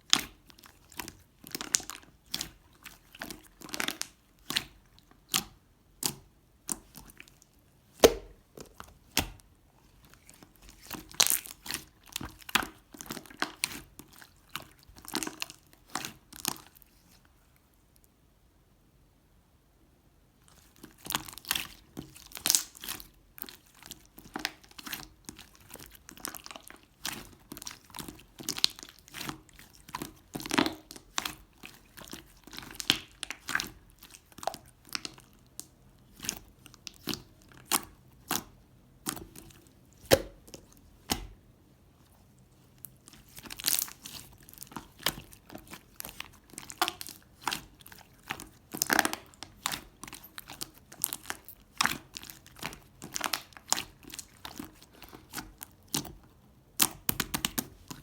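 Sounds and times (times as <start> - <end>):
crinkling and crackling: 20.5 - 58.0.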